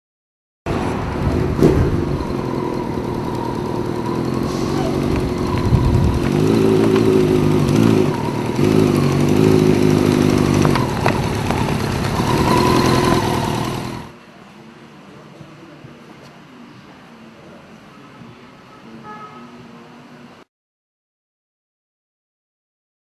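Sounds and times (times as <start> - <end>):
motorcycle engine revving: 0.7 - 14.2.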